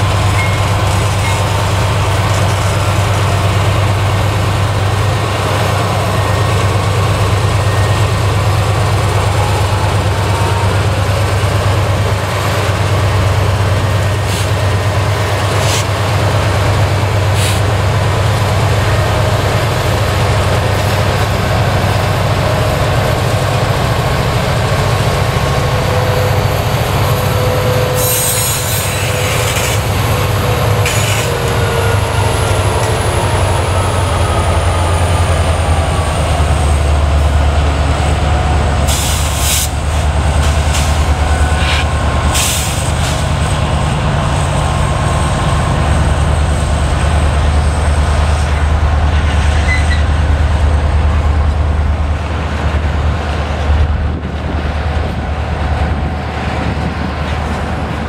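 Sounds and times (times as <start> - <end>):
freight cars wheel-on-rail noise: 0.0 - 58.0
locomotive engine hum: 0.0 - 58.0.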